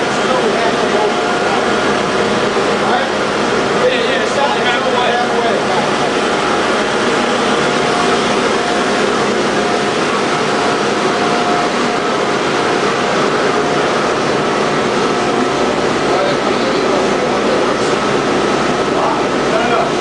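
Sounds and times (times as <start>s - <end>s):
machinery running steadily: 0.0s - 20.0s.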